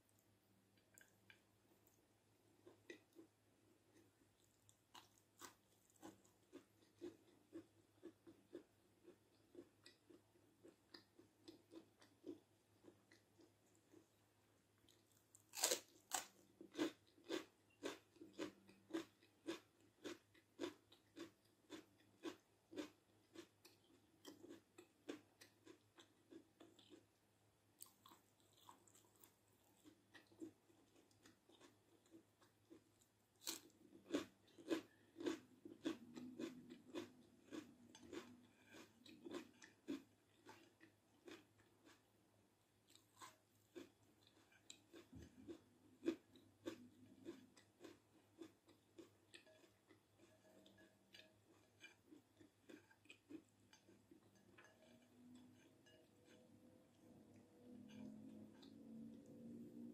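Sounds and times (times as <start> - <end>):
crunching and chewing pepper: 0.8 - 14.2, 14.8 - 27.2, 27.8 - 42.1, 42.8 - 59.9.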